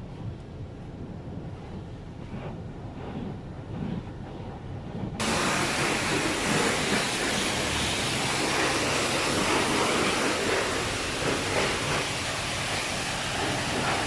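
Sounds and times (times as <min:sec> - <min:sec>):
car wash equipment rushing hiss: 0:05.2 - 0:14.0.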